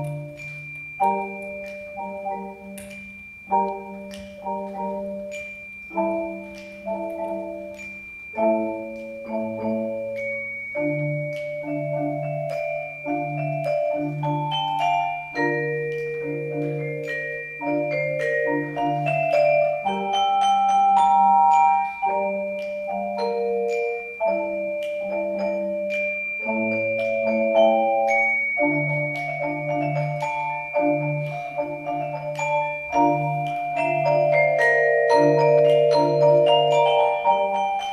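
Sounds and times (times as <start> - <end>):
glockenspiel and vibraphone notes: 0.0 - 37.9
marimbas striking chords: 0.0 - 37.9.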